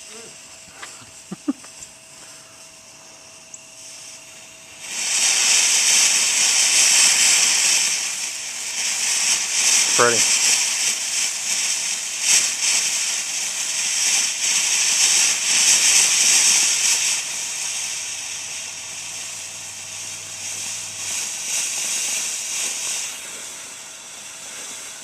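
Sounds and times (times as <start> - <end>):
firework fountain hissing: 0.0 - 25.0.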